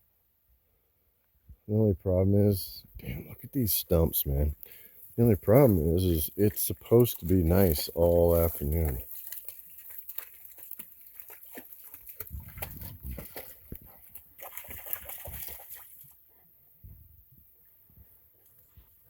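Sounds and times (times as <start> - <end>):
water sloshing against hull: 8.6 - 16.2.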